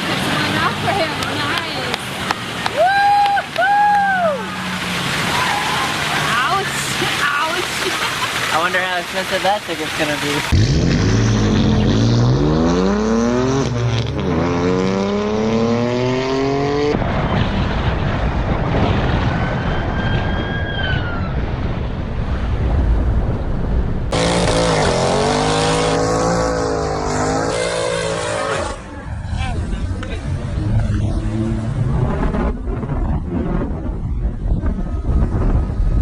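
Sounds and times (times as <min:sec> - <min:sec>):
rushing wind and road noise: 0:00.0 - 0:36.0
engine revving: 0:10.4 - 0:18.1, 0:24.1 - 0:33.7
car engine accelerating: 0:10.4 - 0:19.3, 0:22.3 - 0:34.0
high squeal: 0:19.4 - 0:21.5.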